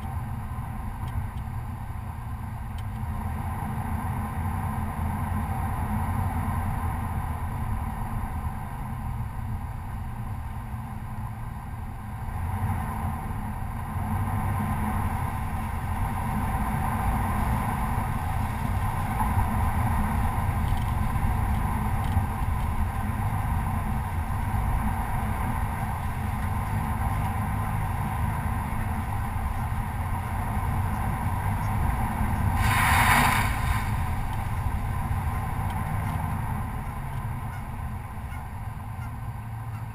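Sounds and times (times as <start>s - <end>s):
pickup truck driving on dirt: 0.0s - 39.9s
loud burst of sound: 32.6s - 34.2s.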